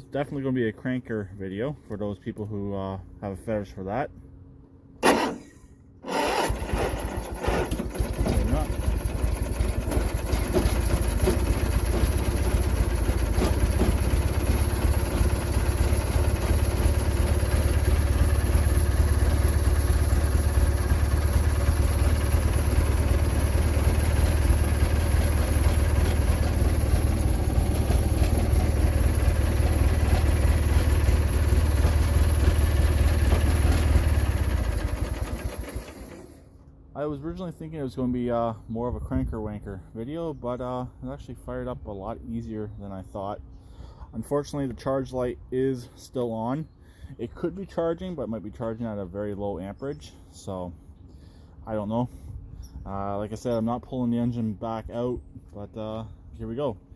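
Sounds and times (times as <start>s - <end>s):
garden tractor engine running: 5.0s - 36.8s.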